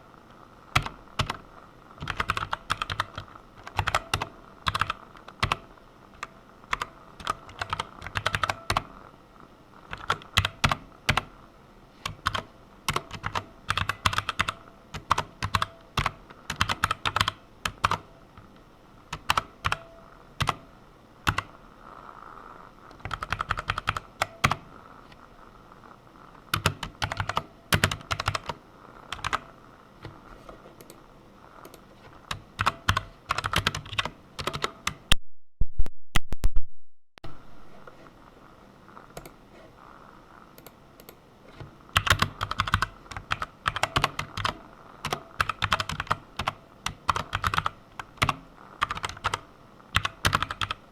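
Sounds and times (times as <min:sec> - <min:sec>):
computer keyboard typing: 0:00.7 - 0:01.4, 0:02.0 - 0:08.9, 0:09.9 - 0:11.3, 0:12.0 - 0:18.5, 0:19.1 - 0:21.5, 0:22.9 - 0:24.7, 0:26.5 - 0:30.2, 0:31.6 - 0:35.1, 0:39.2 - 0:39.4, 0:41.9 - 0:50.8.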